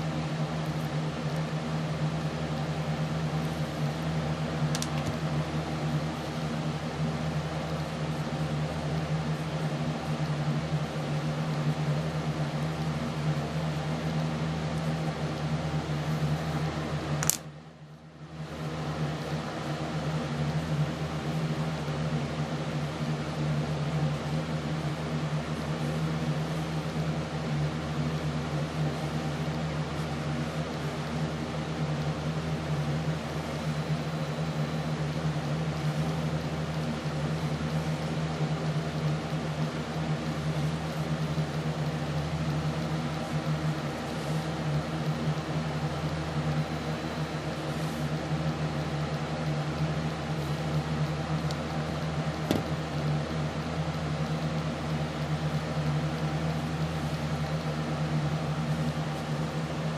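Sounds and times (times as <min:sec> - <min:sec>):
mechanical hum: 0:00.0 - 0:59.9
sharp click: 0:04.7 - 0:05.1, 0:17.2 - 0:17.5.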